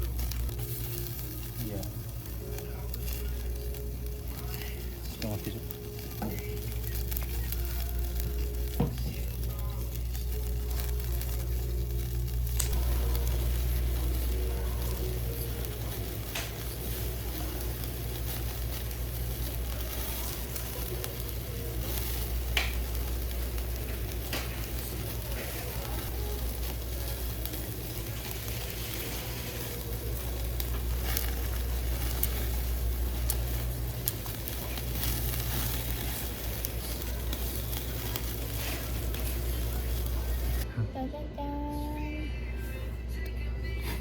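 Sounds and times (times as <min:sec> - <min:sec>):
food sizzling in a pan: 0:00.0 - 0:40.6
sharp pops of frying food: 0:06.1 - 0:09.8, 0:14.4 - 0:40.6.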